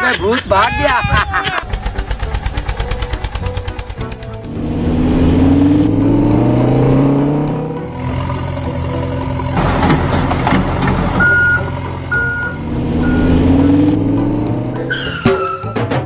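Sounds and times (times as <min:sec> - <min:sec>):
heavy vehicle engine running: 0:01.6 - 0:16.0
reversing alarm beeping: 0:11.1 - 0:14.0.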